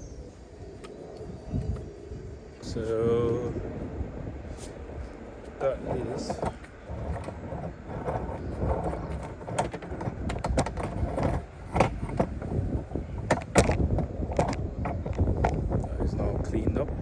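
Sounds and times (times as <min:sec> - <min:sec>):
low rumble: 0:00.0 - 0:17.0
tools clicking and knocking: 0:06.2 - 0:12.5.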